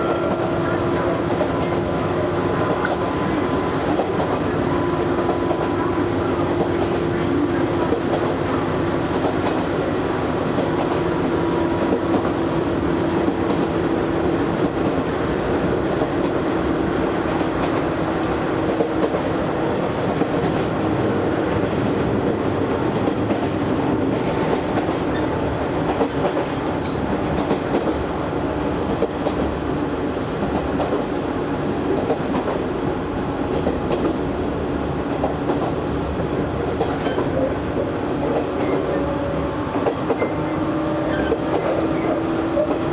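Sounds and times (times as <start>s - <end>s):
wheel and rail noise with clacking: 0.0s - 11.1s, 17.2s - 20.7s, 21.4s - 29.6s, 30.2s - 32.8s, 33.5s - 34.3s, 35.1s - 42.9s.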